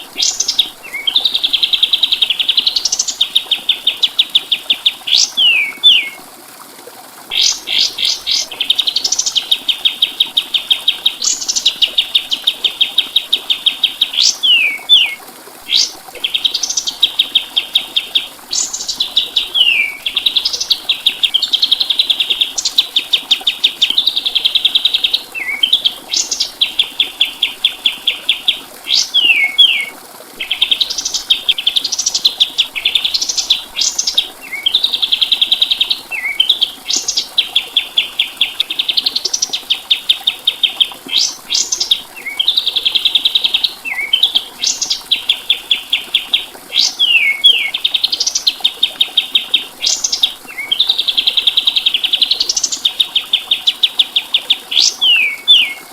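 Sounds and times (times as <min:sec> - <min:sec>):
songbird singing fast trills: 0:00.0 - 0:06.2, 0:07.3 - 0:55.8.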